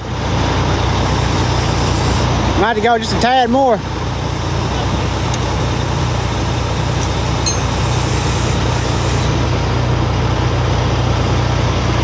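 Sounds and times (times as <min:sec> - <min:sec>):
tow truck engine running: 0:00.0 - 0:12.0.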